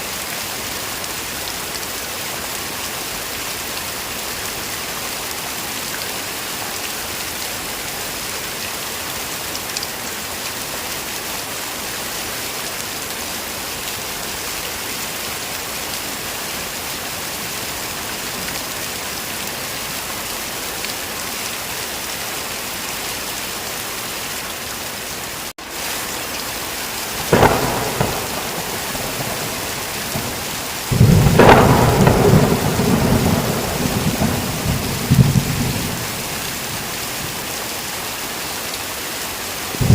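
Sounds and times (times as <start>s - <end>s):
heavy rain: 0.0s - 39.9s
thunder crack: 27.2s - 36.2s
thunder rumble: 27.2s - 37.3s.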